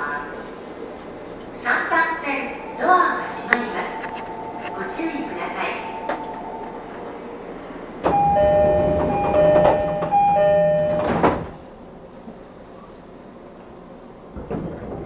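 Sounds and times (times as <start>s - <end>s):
two-tone door chime: 2.8s - 7.0s, 8.1s - 11.5s
sliding doors thudding shut: 8.0s - 11.6s.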